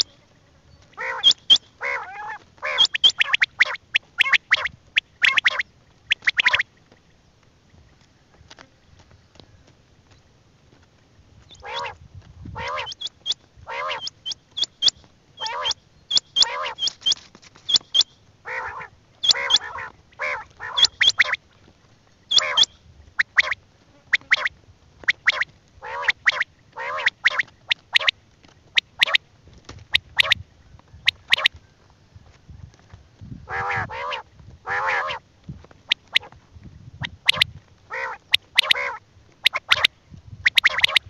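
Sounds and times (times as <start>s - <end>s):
birds calling harshly: 0.0s - 7.1s, 11.5s - 29.2s, 29.8s - 31.6s, 33.4s - 35.2s, 37.0s - 41.0s.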